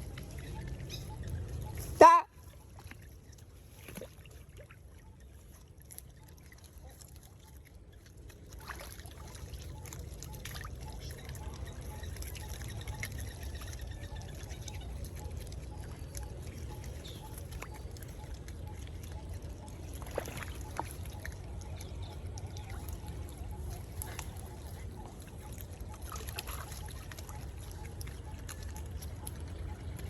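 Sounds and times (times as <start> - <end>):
water trickling and splashing: 0.0 - 30.0.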